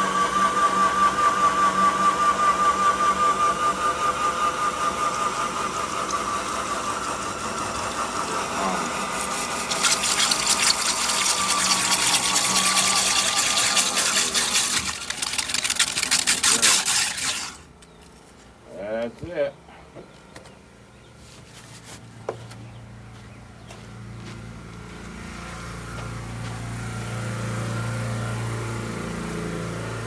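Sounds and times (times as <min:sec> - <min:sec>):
core drill motor whining: 0:00.0 - 0:17.7
drill bit grinding concrete: 0:00.0 - 0:17.7.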